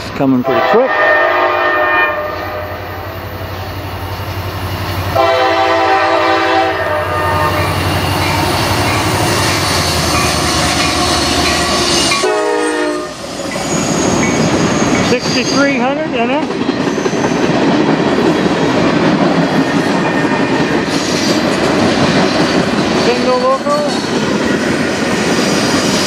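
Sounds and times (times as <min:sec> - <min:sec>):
diesel locomotive engine rumbling: 0:00.0 - 0:26.0
train horn blasts: 0:00.4 - 0:02.9, 0:05.2 - 0:07.8, 0:12.1 - 0:13.2.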